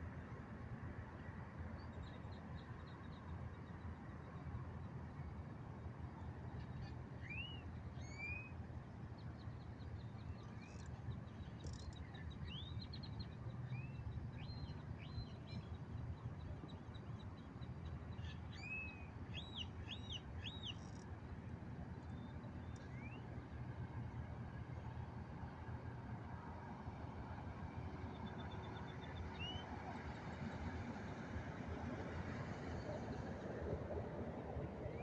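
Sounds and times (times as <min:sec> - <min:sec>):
whistled bird calls: 0:07.2 - 0:08.5, 0:22.9 - 0:23.2.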